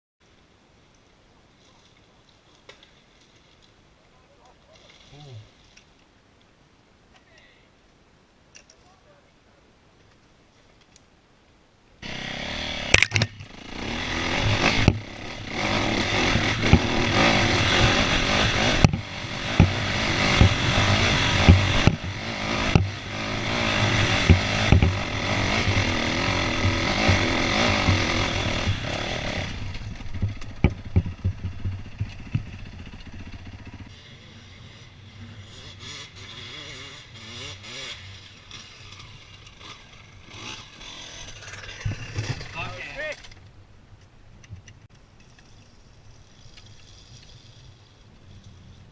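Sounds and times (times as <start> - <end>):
dirt bike engine revving: 12.0 - 43.2.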